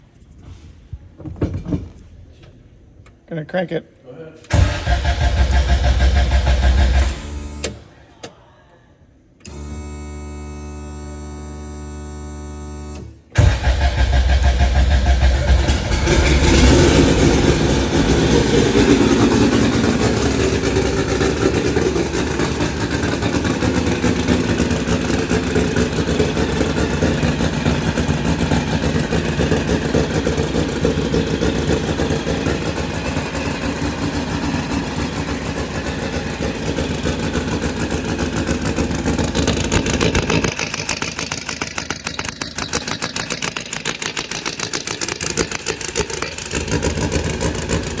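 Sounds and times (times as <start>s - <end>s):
car engine idling: 4.5s - 7.6s, 13.4s - 48.0s.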